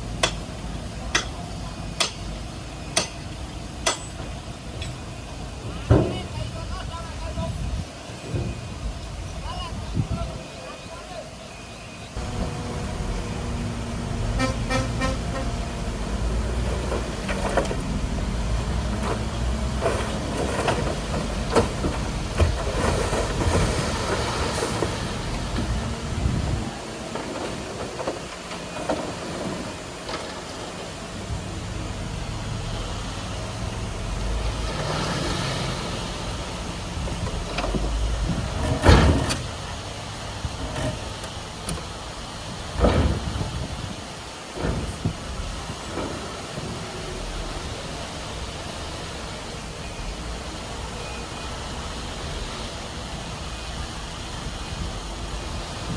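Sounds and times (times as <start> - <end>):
bulldozer diesel engine: 0.0 - 55.9
metallic clanks and knocks: 37.2 - 39.6.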